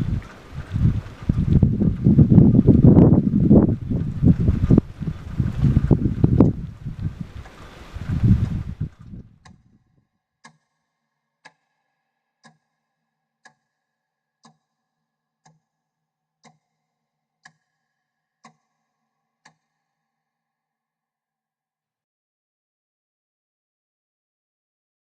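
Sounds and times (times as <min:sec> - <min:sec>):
wind noise: 0:00.0 - 0:10.0
clock-like ticking: 0:00.1 - 0:09.8, 0:10.4 - 0:10.8, 0:11.4 - 0:12.8, 0:13.4 - 0:13.8, 0:14.4 - 0:14.8, 0:15.4 - 0:15.6, 0:16.4 - 0:16.7, 0:17.4 - 0:18.8, 0:19.4 - 0:19.7.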